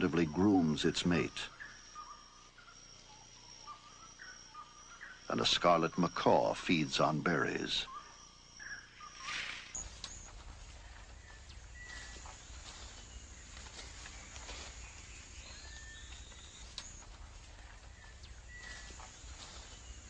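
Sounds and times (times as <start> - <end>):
insect hiss: 0.0 - 20.0
bird whistles: 9.0 - 10.3
faint clicks: 15.7 - 18.8.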